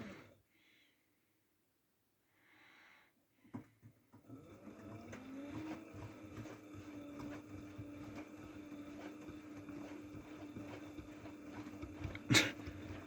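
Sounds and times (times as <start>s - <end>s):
washing machine motor humming: 4.1s - 13.0s.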